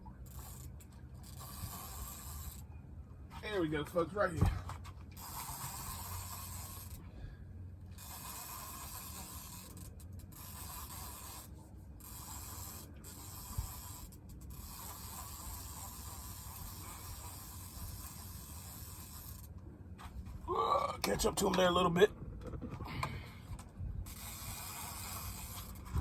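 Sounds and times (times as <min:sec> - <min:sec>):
fishing reel cranking: 0:00.2 - 0:02.6, 0:04.9 - 0:07.1, 0:07.8 - 0:19.6, 0:22.8 - 0:26.0
wind on microphone: 0:22.1 - 0:24.3, 0:25.3 - 0:26.0.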